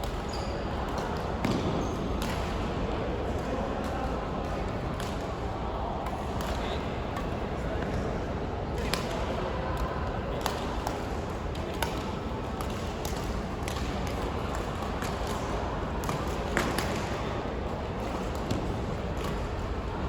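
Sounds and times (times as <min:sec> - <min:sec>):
sports hall noise: 0:00.0 - 0:20.0
rackets hitting shuttlecock: 0:00.9 - 0:02.6, 0:06.0 - 0:06.6, 0:08.8 - 0:09.2, 0:09.8 - 0:17.2.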